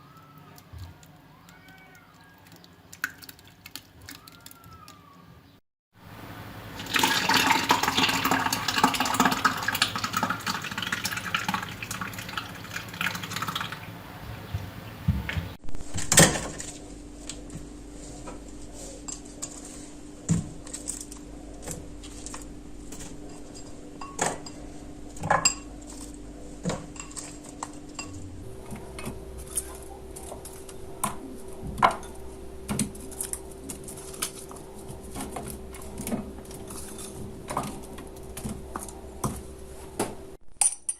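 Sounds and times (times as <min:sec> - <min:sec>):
water running from a tap: 0:06.8 - 0:14.0
low hum: 0:16.7 - 0:40.9
dishes and utensils clinking: 0:22.9 - 0:28.2.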